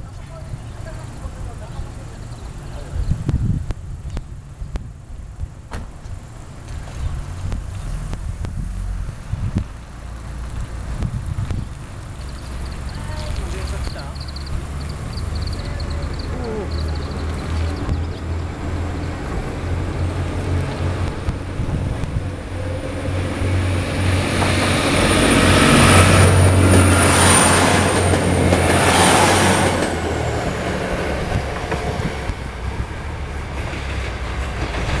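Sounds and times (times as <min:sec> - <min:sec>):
electric train low hum: 0:00.0 - 0:35.0
train wheels rumbling on rails: 0:00.0 - 0:35.0
high-pitched wheel squeal: 0:12.2 - 0:18.2.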